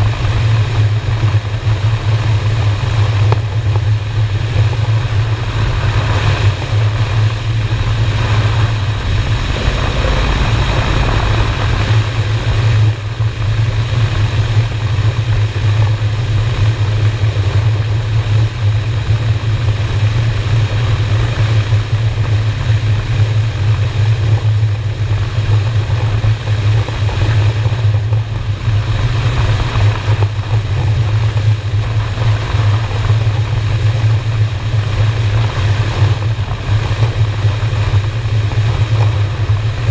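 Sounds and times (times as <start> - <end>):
motorcycle engine droning: 5.0 - 14.6
rushing noise: 5.1 - 14.6.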